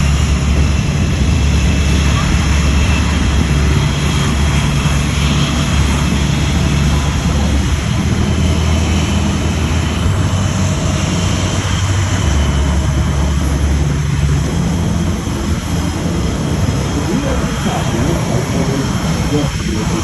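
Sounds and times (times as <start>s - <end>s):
jet engines droning: 0.0s - 20.0s.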